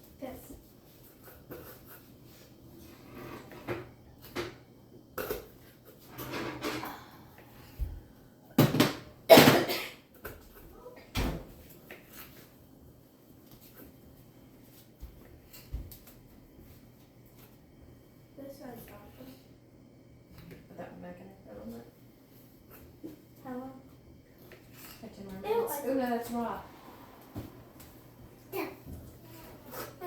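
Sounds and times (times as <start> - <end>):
kitchen utensils clattering: 6.0 - 7.8.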